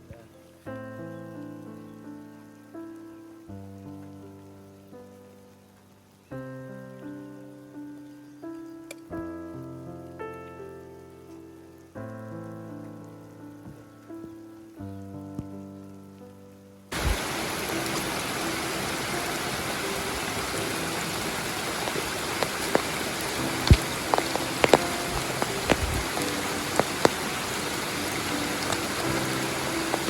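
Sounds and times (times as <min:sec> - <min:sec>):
soft music notes: 0:00.0 - 0:30.0
running water rushing: 0:16.9 - 0:30.0.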